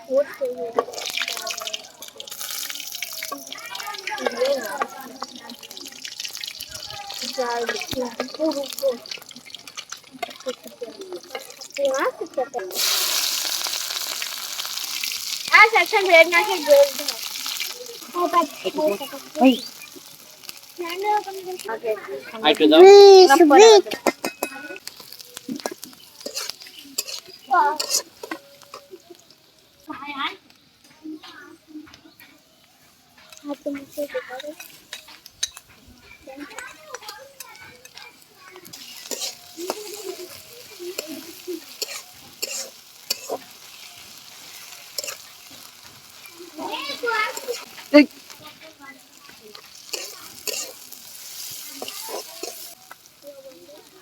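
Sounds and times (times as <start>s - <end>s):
child's voice: 0.0s - 1.8s, 3.2s - 5.6s, 6.7s - 9.0s, 15.5s - 17.2s, 17.8s - 19.6s, 20.8s - 24.1s, 27.5s - 28.0s, 36.0s - 42.6s, 46.3s - 50.7s, 51.6s - 54.0s
food sizzling: 0.0s - 54.0s
utensil scraping a pan: 24.1s - 28.9s, 38.8s - 46.0s, 49.5s - 52.8s.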